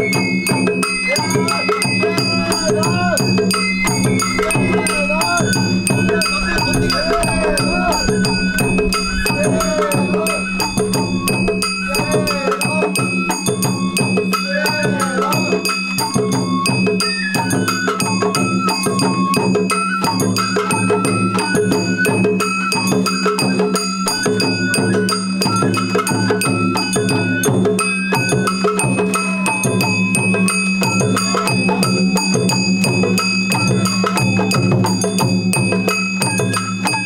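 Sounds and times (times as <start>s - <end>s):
steady drum strokes: 0.0s - 18.1s
bamboo flute melody: 0.0s - 37.0s
ringing metal percussion: 0.0s - 37.0s.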